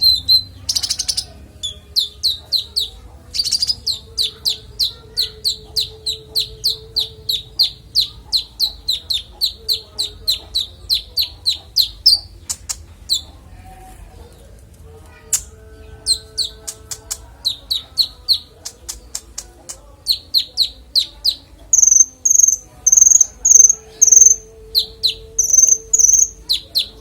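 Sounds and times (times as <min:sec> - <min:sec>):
songbird harsh chattering: 0:00.0 - 0:13.4, 0:16.1 - 0:27.0
songbird whistled notes: 0:20.1 - 0:27.0.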